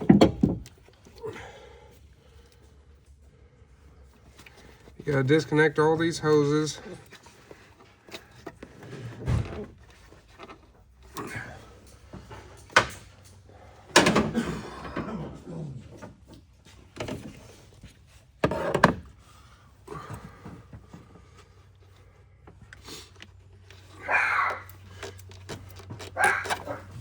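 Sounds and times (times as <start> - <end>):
hand tools clicking and clattering: 22.8 - 27.0.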